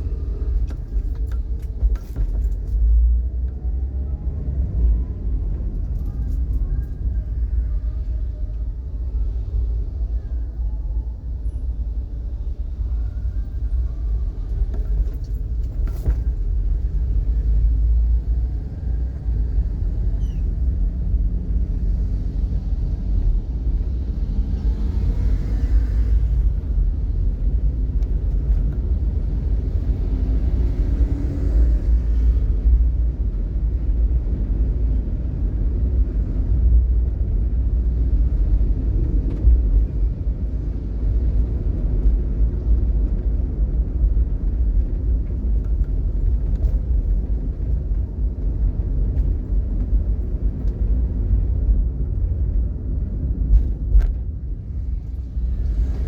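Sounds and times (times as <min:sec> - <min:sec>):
vehicle rumble in traffic: 0:00.0 - 0:56.0.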